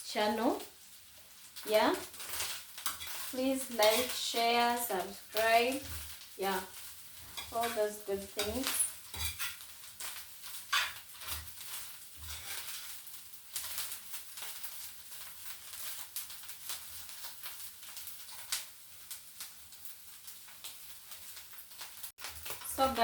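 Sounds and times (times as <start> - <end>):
fish sizzling in a saucepan: 0.0 - 23.0
spoon scraping while stirring: 8.4 - 9.6, 10.7 - 12.9.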